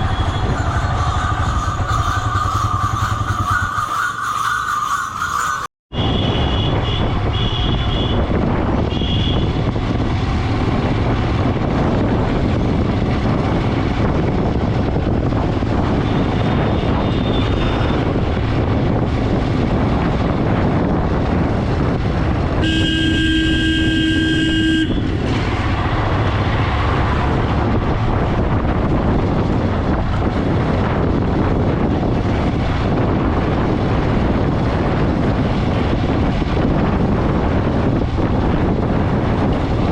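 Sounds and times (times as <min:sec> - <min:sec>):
motorcycle running: 0:00.0 - 0:39.9
wind and road noise: 0:00.0 - 0:39.9
vehicle horn sounding steadily: 0:05.9 - 0:09.6, 0:16.1 - 0:18.0, 0:22.6 - 0:25.2
short horn beeps: 0:22.6 - 0:25.0.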